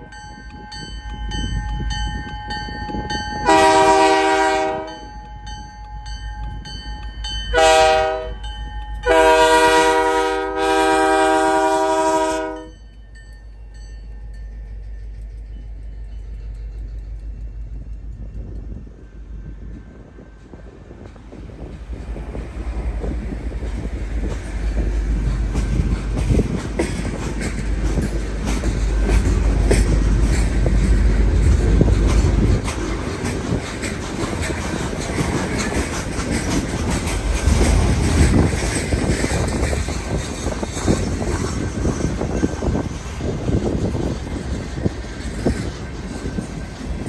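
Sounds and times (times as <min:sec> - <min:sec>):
train rumbling past: 0:00.0 - 0:47.0
wheels clacking over rails: 0:20.8 - 0:47.0.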